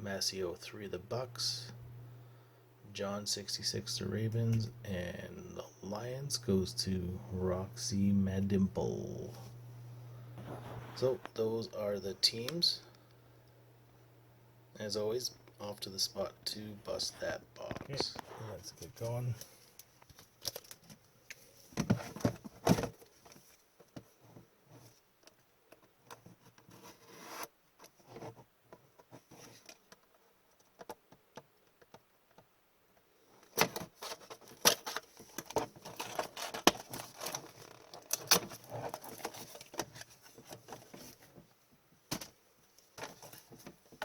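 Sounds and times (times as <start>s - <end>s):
wrapper and cardboard crinkling: 33.9s - 41.2s.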